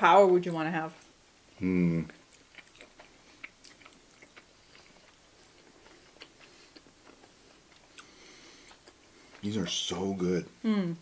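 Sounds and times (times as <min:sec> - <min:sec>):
faint chewing: 0:02.0 - 0:09.8.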